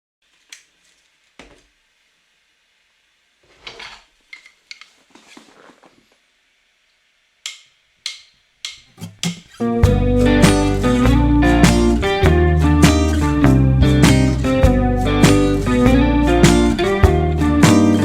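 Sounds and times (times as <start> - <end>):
rustling scrape: 3.4 - 4.1, 4.8 - 6.2.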